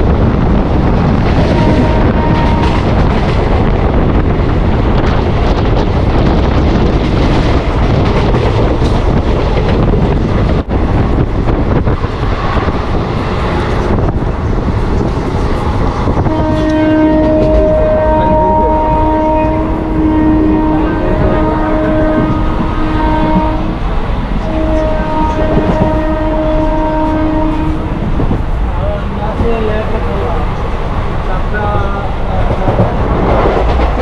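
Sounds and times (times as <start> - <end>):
train wheels rumbling: 0.0 - 34.0
train horn long note: 1.4 - 2.9, 16.2 - 23.8, 24.4 - 27.9.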